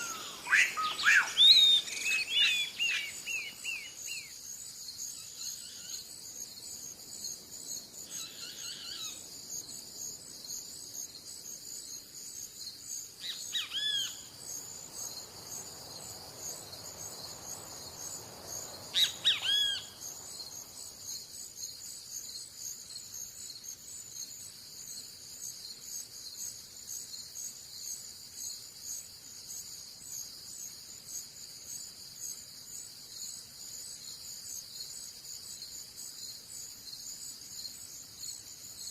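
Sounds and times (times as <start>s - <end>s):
short bird calls: 0.0s - 4.0s, 19.0s - 20.0s
insect chorus: 0.0s - 38.9s.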